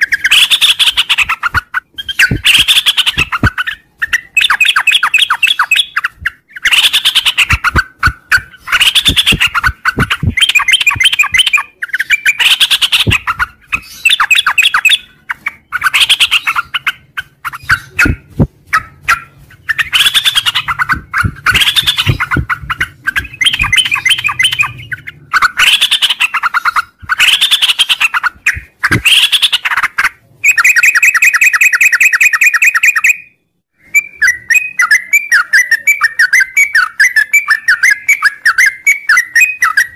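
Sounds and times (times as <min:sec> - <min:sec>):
bulbul singing: 0:00.0 - 0:29.8
bird trill: 0:00.0 - 0:39.9.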